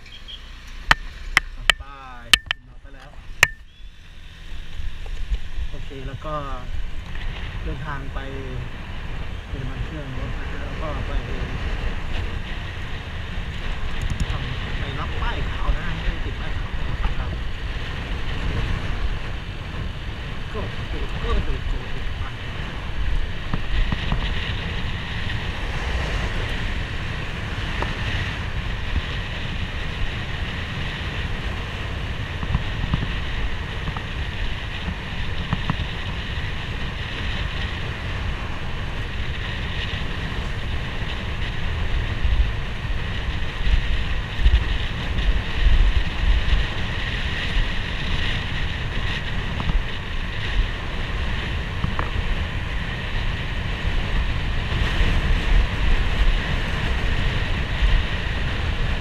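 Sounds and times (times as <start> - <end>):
motorcycle engine: 0.0 - 6.1
road noise: 0.0 - 59.0
wind buffeting microphone: 0.0 - 59.0.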